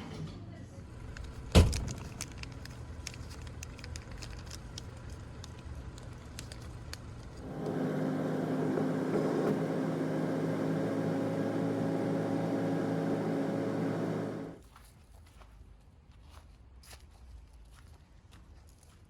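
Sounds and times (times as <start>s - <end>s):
machine humming drone: 7.4s - 14.6s.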